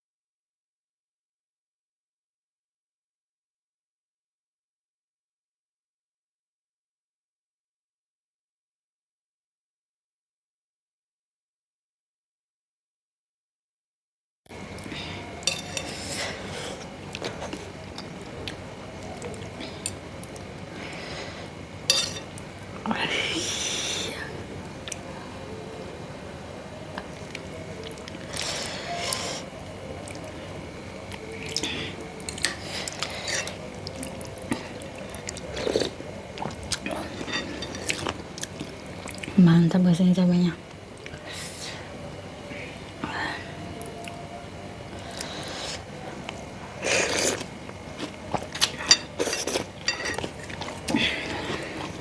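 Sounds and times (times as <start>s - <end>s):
spoon clinking against a bowl: 15.4s - 15.9s, 21.9s - 22.3s, 48.8s - 50.3s
wet chewing: 45.0s - 52.0s.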